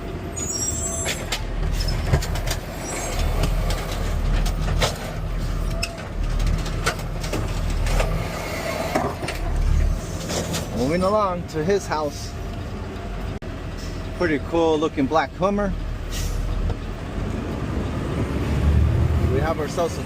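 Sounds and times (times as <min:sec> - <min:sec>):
garbage truck engine running: 0:00.0 - 0:19.3
high squeal: 0:00.3 - 0:02.1, 0:02.7 - 0:03.4
knocks and rattles of truck body: 0:01.2 - 0:08.3.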